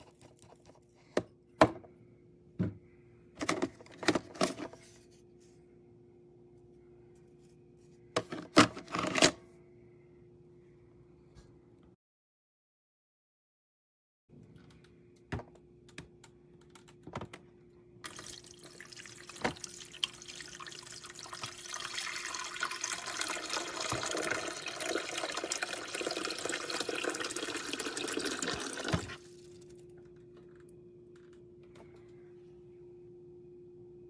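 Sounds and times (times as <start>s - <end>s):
water running from a tap: 18.0s - 29.2s.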